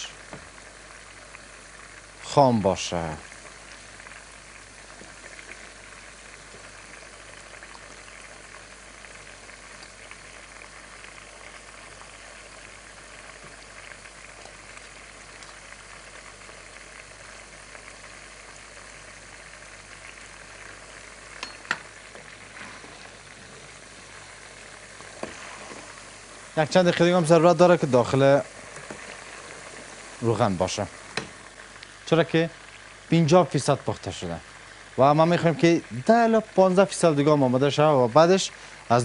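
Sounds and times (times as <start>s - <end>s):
meat sizzling in hot oil: 0.0s - 39.0s.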